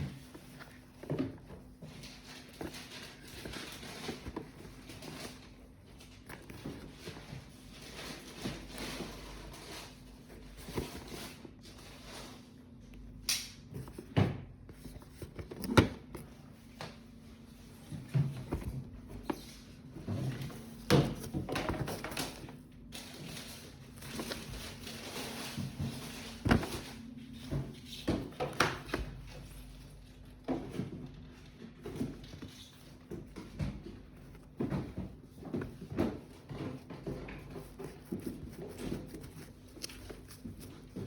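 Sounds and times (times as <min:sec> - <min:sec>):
packaging rustling: 0:00.2 - 0:10.0.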